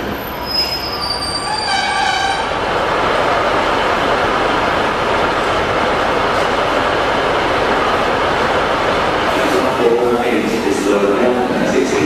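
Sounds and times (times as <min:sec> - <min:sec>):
train rumbling: 0:00.0 - 0:12.0
metallic wheel squeal: 0:00.2 - 0:02.4.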